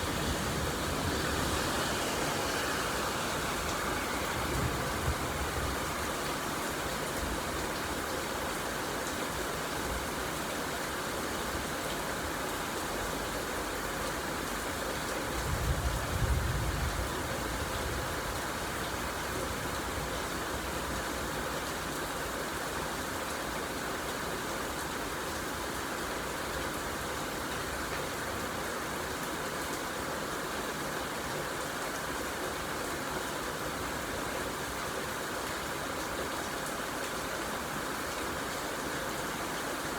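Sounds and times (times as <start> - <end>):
rain hissing: 0.0 - 11.1.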